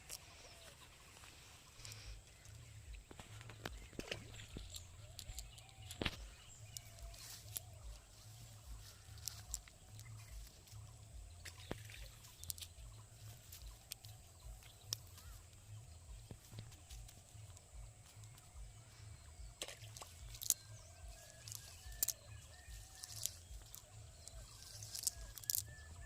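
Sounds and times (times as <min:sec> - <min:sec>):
sharp clicks: 0:01.8 - 0:07.8, 0:19.6 - 0:25.8.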